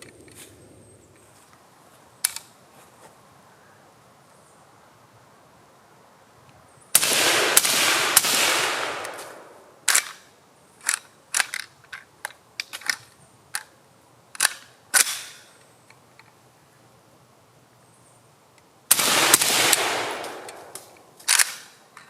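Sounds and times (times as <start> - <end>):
suppressed rifle shots: 7.0 - 10.1, 18.9 - 21.6.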